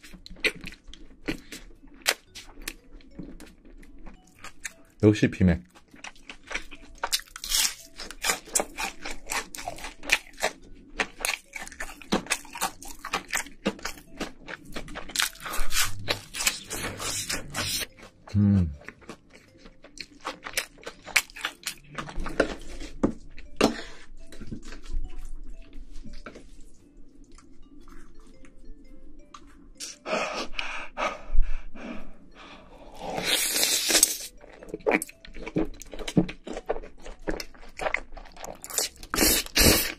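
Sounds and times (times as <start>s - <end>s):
crunching and chewing food: 0.0s - 30.6s, 32.5s - 39.9s
closed-mouth hum: 18.3s - 18.8s.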